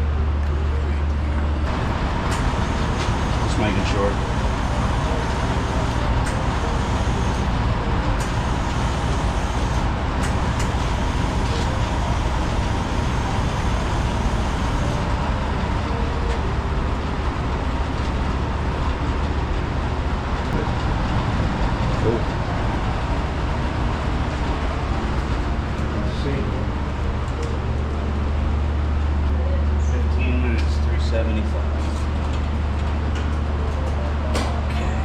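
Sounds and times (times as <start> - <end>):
shop equipment humming: 0.0 - 35.0.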